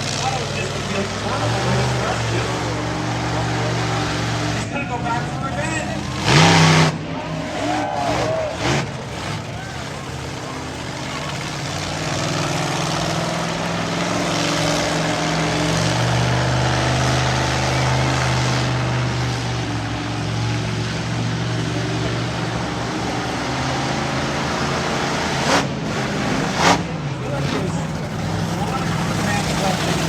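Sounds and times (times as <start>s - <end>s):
truck engine revving: 0.0s - 30.0s.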